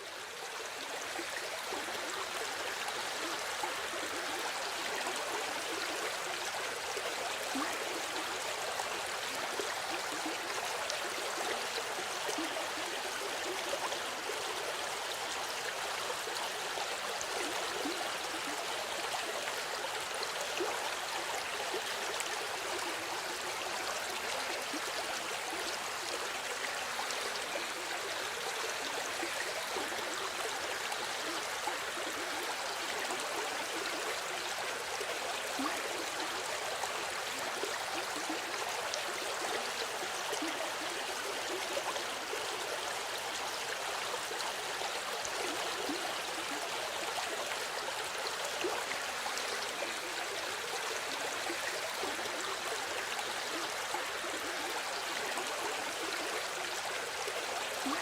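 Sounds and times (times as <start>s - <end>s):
flowing water: 0.0s - 58.0s.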